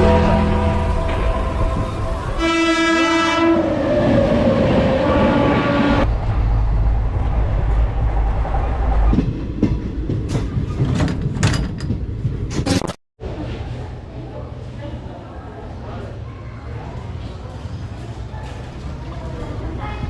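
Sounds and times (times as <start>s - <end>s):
train horn: 0.0s - 4.0s, 5.0s - 6.1s
low rumble of moving train: 0.0s - 20.0s.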